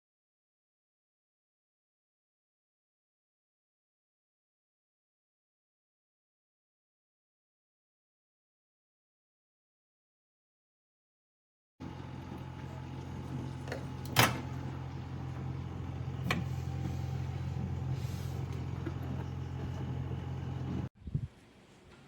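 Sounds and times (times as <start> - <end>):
microwave oven humming: 11.8 - 20.9.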